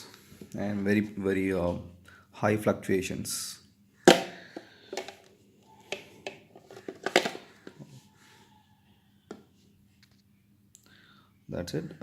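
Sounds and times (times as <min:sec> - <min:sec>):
plastic device clicks and knocks: 0:05.9 - 0:07.8.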